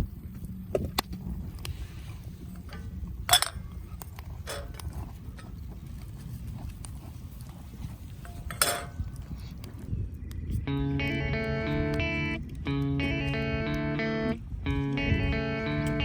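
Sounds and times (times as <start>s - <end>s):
low steady rumble: 10.1s - 16.0s.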